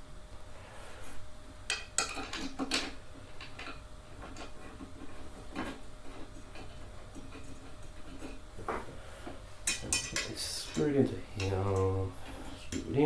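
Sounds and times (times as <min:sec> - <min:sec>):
metallic clinks of parts and tools: 0:09.7 - 0:11.9.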